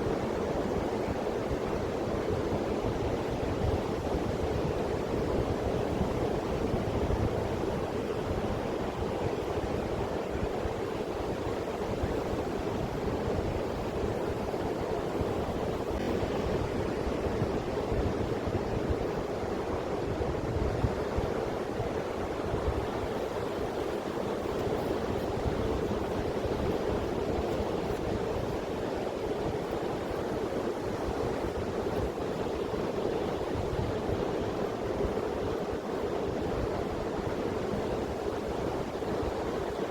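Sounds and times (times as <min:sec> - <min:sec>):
sea surf washing onto beach: 0:00.0 - 0:39.9.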